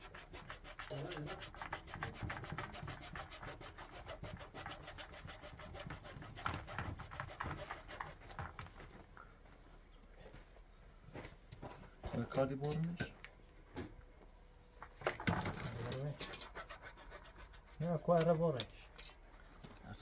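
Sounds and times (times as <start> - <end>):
hand tool rasping back and forth: 0.0 - 8.4, 15.7 - 19.4.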